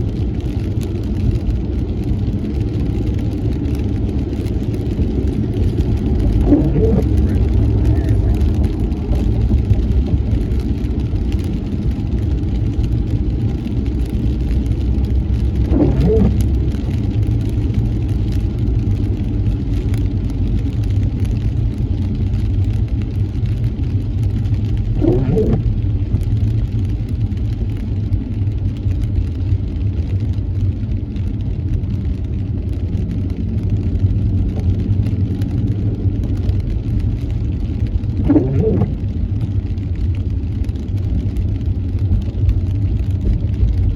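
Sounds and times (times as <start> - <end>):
car engine and road rumble: 0.0 - 43.9
windshield wipers sweeping: 2.5 - 28.1, 36.0 - 43.9.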